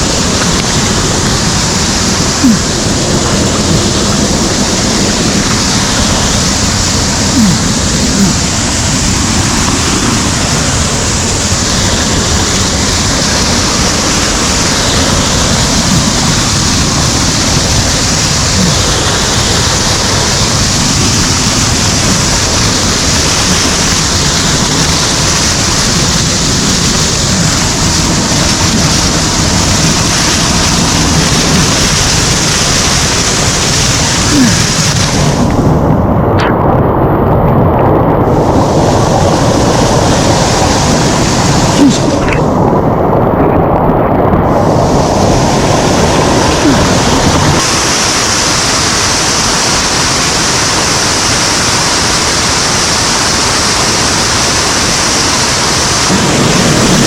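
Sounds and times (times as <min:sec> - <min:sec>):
rushing stream cascades: 0:00.0 - 0:57.0.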